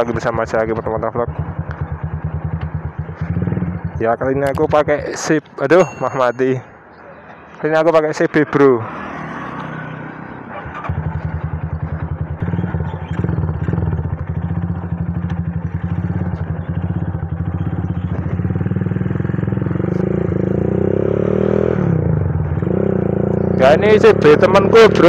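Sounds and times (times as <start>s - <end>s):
motorcycle engine deep exhaust throb: 0.0s - 5.2s, 10.8s - 25.0s.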